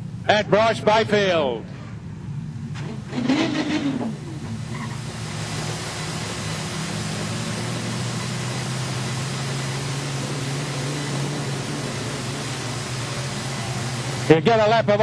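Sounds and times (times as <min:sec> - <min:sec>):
car engines idling: 0:00.0 - 0:15.0.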